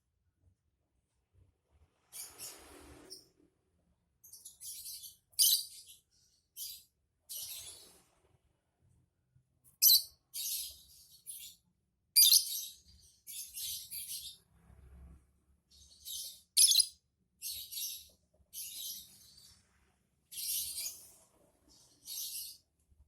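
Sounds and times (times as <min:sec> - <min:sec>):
lovebird shrill chirping: 0:04.7 - 0:05.8, 0:09.8 - 0:10.7, 0:12.2 - 0:14.3, 0:16.1 - 0:18.0.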